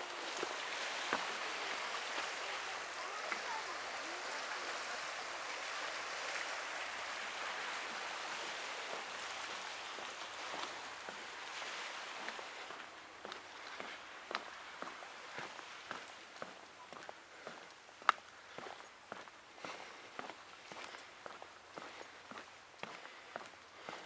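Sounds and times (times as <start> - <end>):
water washing against rocks: 0.0 - 16.1.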